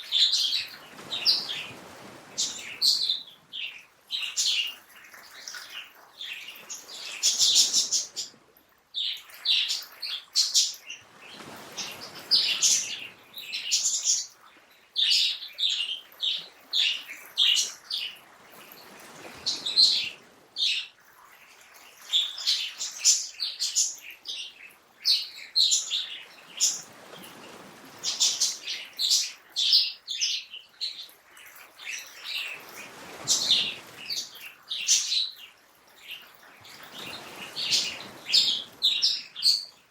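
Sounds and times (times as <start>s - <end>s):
songbirds chirping and singing: 0.1s - 8.4s, 28.0s - 39.9s.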